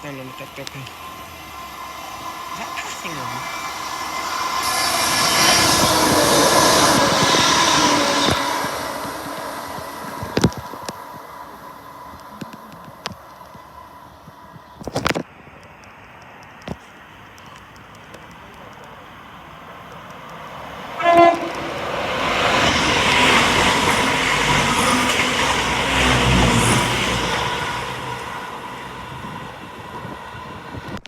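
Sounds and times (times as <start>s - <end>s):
train rushing past: 0.0s - 14.8s, 18.3s - 31.0s
train horn toot: 21.0s - 21.9s.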